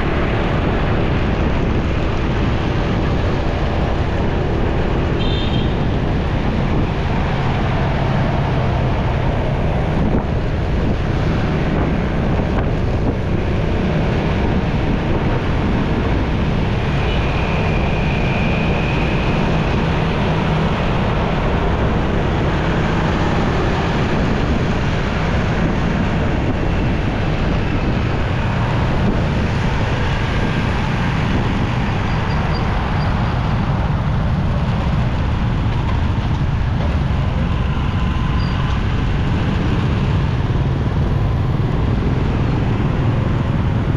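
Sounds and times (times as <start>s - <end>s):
wind rush on microphone: 0.0s - 43.9s.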